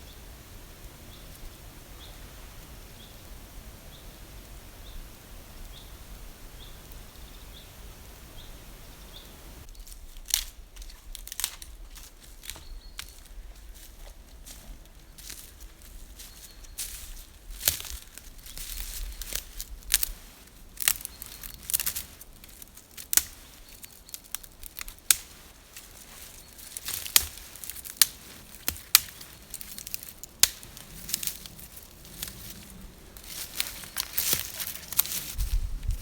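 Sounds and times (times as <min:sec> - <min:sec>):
soft rustle: 0:03.8 - 0:36.0
sharp snaps and cracks: 0:09.9 - 0:13.3, 0:16.8 - 0:36.0.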